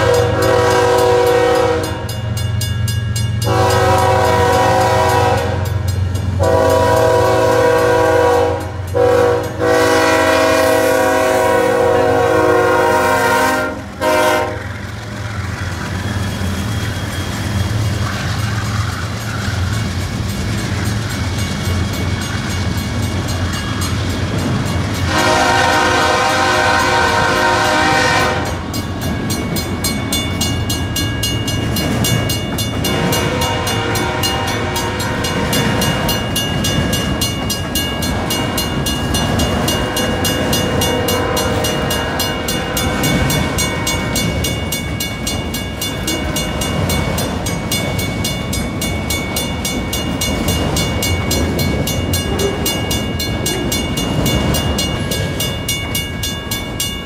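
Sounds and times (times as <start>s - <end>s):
locomotive horn: 0.0s - 2.1s, 3.4s - 5.8s, 6.4s - 14.8s, 25.0s - 28.7s, 32.8s - 35.8s, 39.9s - 44.2s
freight train wheels clacking: 0.0s - 57.0s.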